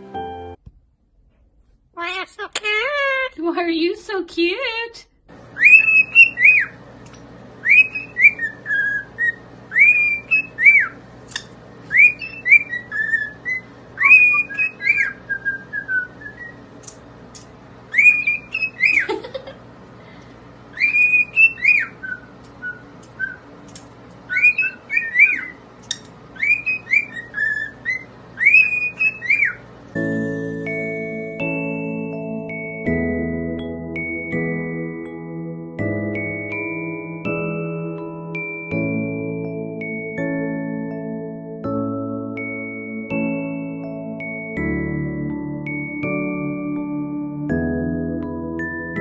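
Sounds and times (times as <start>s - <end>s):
parrot whistling melody: 5.5s - 6.8s, 7.6s - 16.6s, 17.9s - 19.2s, 20.7s - 23.5s, 24.3s - 33.0s, 42.4s - 43.3s.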